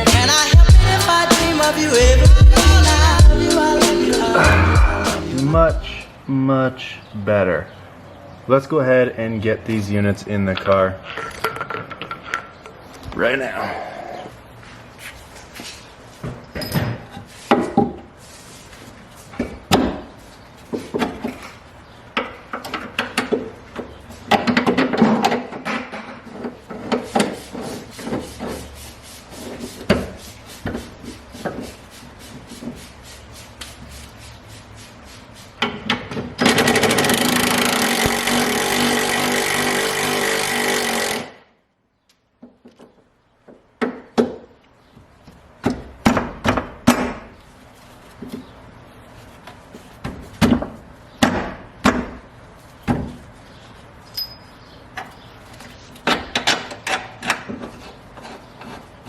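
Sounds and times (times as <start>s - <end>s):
loud steady power tool noise: 36.5s - 41.4s
metal parts and hand tools clicking: 54.1s - 55.1s.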